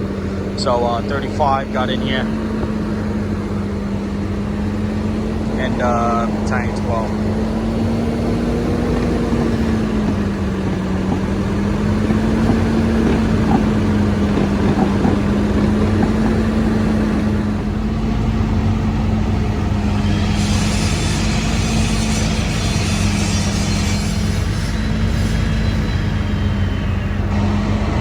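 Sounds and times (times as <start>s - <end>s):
fire truck engine running: 0.0s - 28.0s
hiss: 19.9s - 26.7s.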